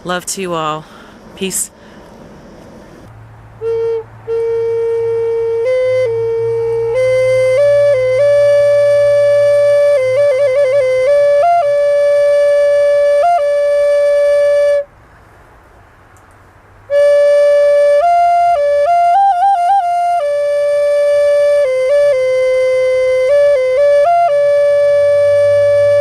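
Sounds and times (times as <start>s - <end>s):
solo flute melody: 3.5s - 14.9s, 16.9s - 26.0s.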